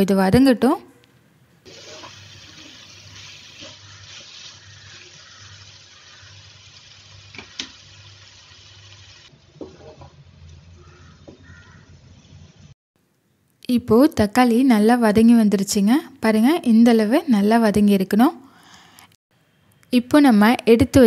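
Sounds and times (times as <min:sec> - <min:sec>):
spatula scraping pan: 0:01.7 - 0:04.6
vegetables sizzling in hot oil: 0:01.7 - 0:10.9.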